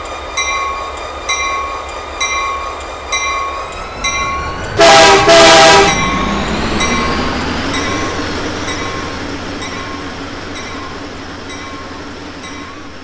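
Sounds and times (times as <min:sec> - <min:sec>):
train rolling past rumble: 0:00.0 - 0:13.0
train horn blast: 0:03.6 - 0:09.1.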